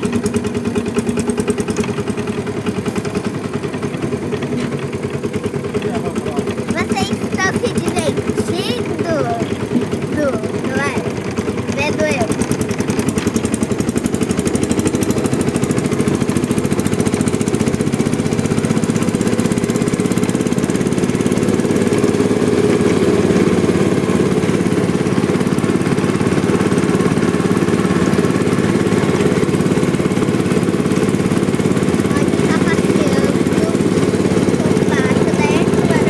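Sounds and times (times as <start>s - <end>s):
diesel tractor engine chugging: 0.0s - 36.0s.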